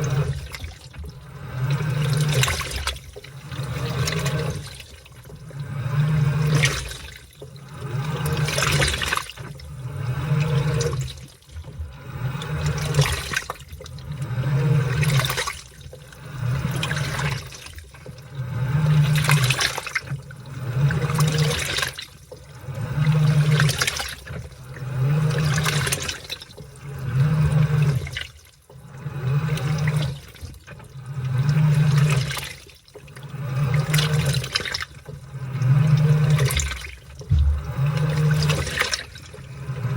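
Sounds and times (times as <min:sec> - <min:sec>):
water sloshing: 0:00.0 - 0:09.8, 0:36.0 - 0:39.9
washing machine motor hum: 0:00.0 - 0:39.9.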